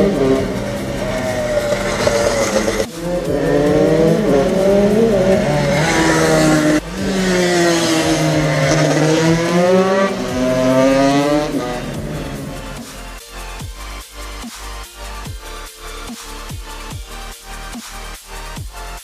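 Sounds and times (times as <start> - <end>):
two-stroke engine revving: 0.0 - 13.2.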